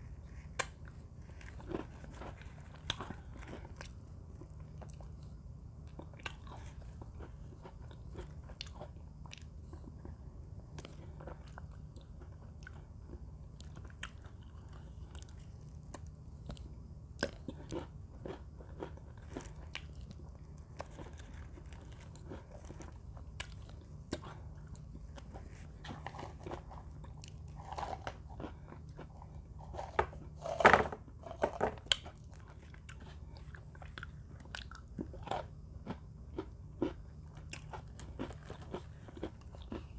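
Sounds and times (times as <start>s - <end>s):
steady low hum: 0.0s - 39.9s
cookies being crunched: 0.4s - 5.2s, 17.2s - 39.9s.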